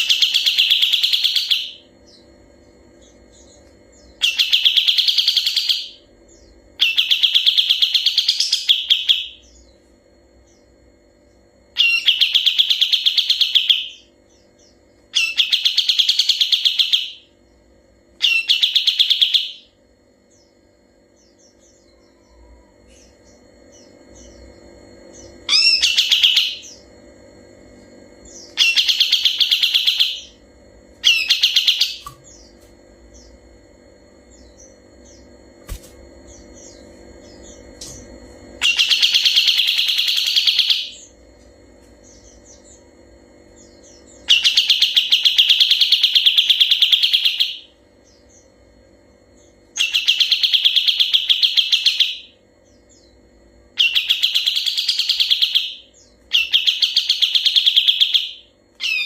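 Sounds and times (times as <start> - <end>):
faint bird chirps: 0.0 - 26.9
bird singing rattling trills: 0.0 - 59.0
low steady hum: 0.0 - 59.0.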